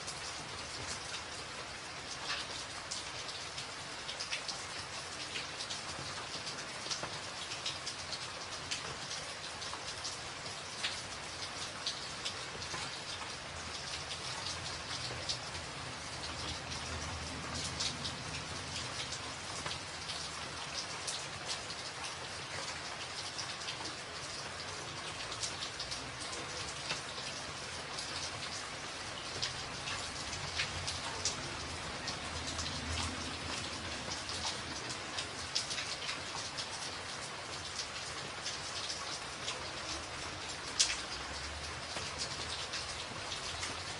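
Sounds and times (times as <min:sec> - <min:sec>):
rain drumming on a tin roof: 0:00.0 - 0:43.9.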